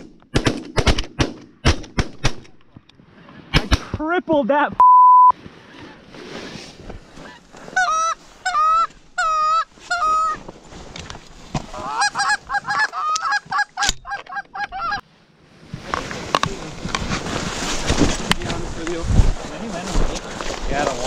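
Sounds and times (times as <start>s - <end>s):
geese honking: 7.8s - 10.4s, 11.8s - 15.0s.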